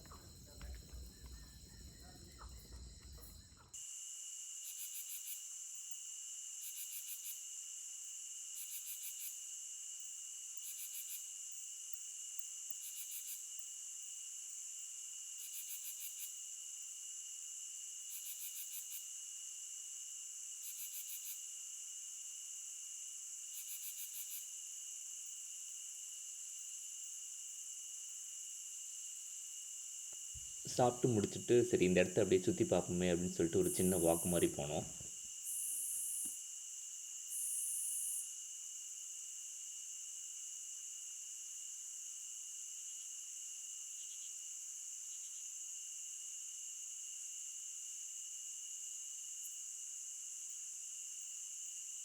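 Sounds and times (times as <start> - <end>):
crickets trilling: 0.0 - 52.0
outdoor ambience: 0.0 - 52.0
insect pulsing bursts: 30.4 - 36.3.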